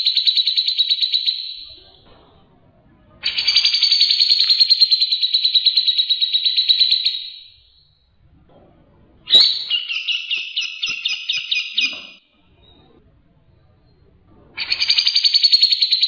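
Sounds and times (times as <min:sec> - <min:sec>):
songbird trilling: 0:09.3 - 0:12.2.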